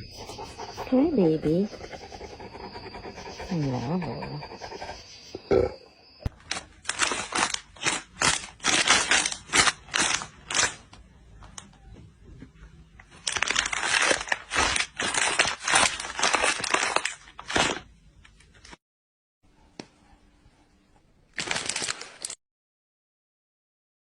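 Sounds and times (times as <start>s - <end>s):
crisp crunching: 6.3s - 11.7s, 13.0s - 17.9s, 21.4s - 22.4s.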